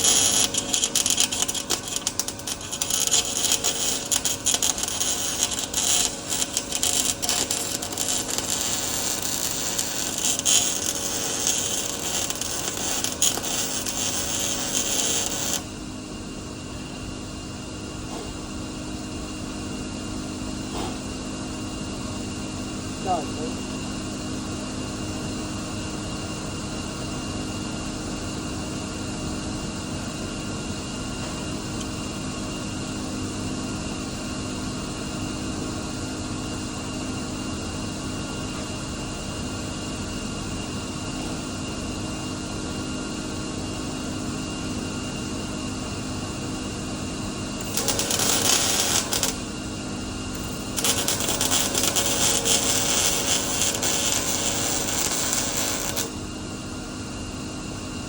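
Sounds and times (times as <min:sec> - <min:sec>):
welding arc crackling: 0:00.0 - 0:15.7, 0:47.6 - 0:49.6, 0:50.4 - 0:56.2
machine hum: 0:00.0 - 0:15.8, 0:47.6 - 0:56.4.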